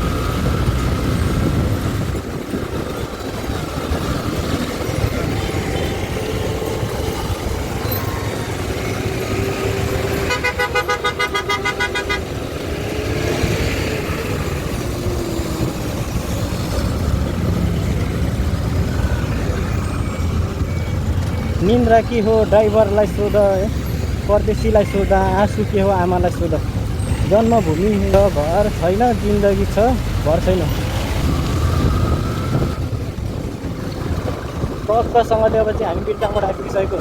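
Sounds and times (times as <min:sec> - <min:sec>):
motorbike engine and road noise: 0:00.0 - 0:37.0
vehicle horn pulsing: 0:05.2 - 0:12.7.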